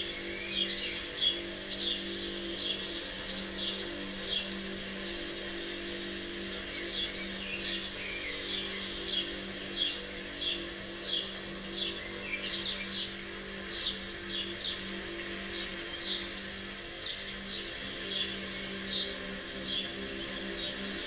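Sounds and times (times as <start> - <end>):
songbirds chirping: 0.0 - 21.0
steady low drone: 0.0 - 21.0.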